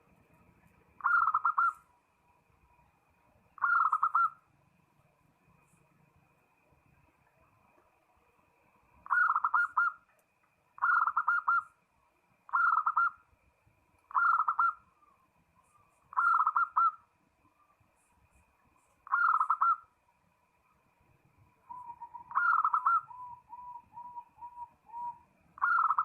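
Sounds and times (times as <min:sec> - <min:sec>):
dove cooing: 0:01.0 - 0:01.8, 0:03.6 - 0:04.4, 0:09.0 - 0:10.0, 0:10.8 - 0:11.6, 0:12.5 - 0:13.1, 0:14.1 - 0:14.8, 0:15.8 - 0:17.0, 0:19.0 - 0:19.9, 0:21.7 - 0:26.0.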